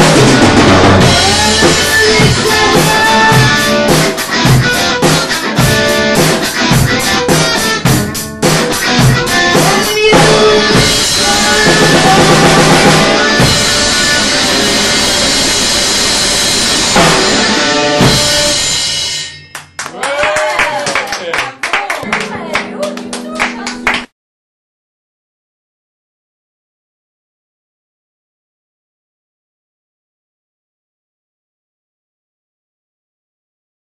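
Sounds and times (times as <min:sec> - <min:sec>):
electric guitar: 0:00.0 - 0:19.8, 0:22.0 - 0:24.1
drum kit beat: 0:00.0 - 0:21.1.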